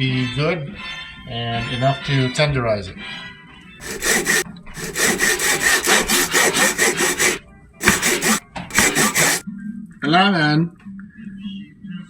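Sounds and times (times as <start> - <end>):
rapid scraping strokes: 3.8 - 9.4.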